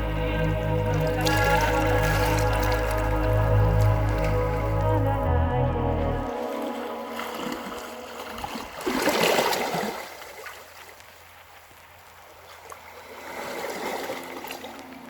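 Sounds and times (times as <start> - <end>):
sea waves washing on shore: 0.0 - 5.3, 6.2 - 10.9.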